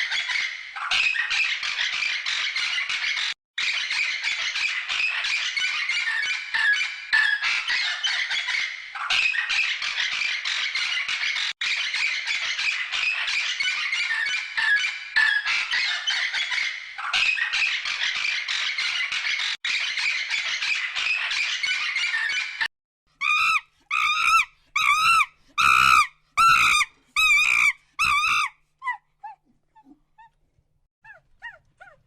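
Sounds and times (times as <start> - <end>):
chorus of squawking: 0.0 - 30.3
loud pitched animal calls: 23.2 - 29.4.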